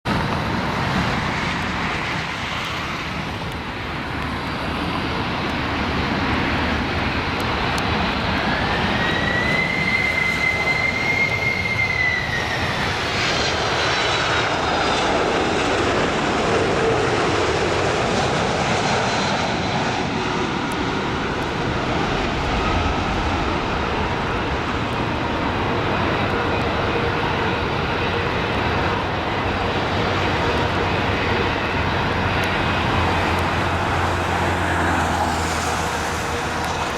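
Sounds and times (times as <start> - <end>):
high engine whine: 0.1 - 36.9
jet engines running: 0.1 - 36.9.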